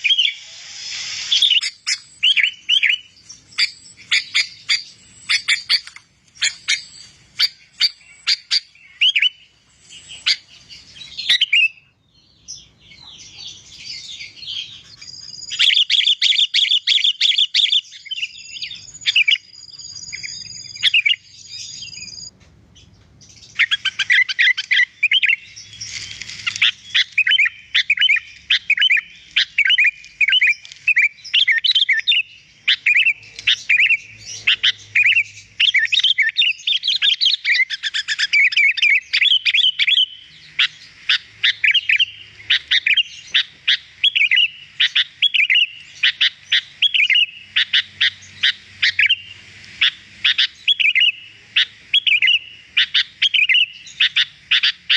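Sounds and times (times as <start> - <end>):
bird singing chirps and whistles: 0.0 - 26.0, 26.6 - 54.8.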